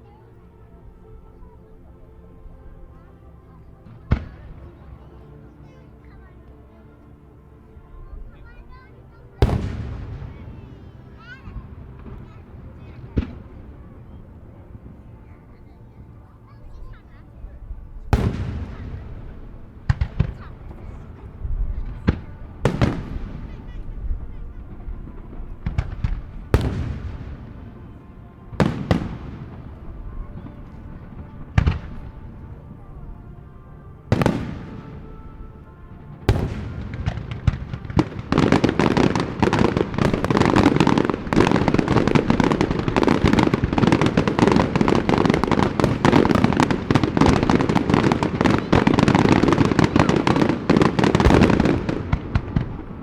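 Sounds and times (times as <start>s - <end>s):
fireworks barrage crackling: 3.8s - 6.2s, 8.4s - 53.0s.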